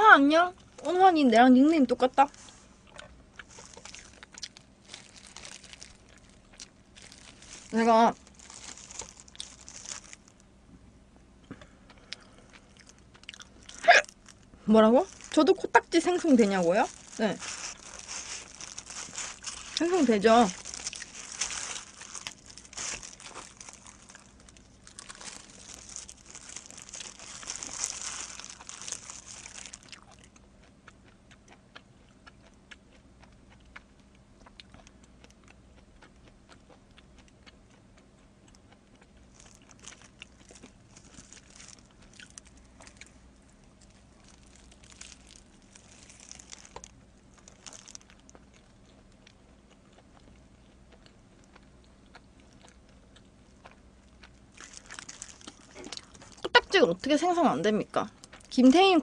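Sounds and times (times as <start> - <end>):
plastic gloves crinkling: 0.0 - 10.5, 12.6 - 30.4, 39.3 - 48.8, 54.3 - 59.0
faint chewing: 2.0 - 10.5, 11.4 - 57.2, 58.0 - 59.0.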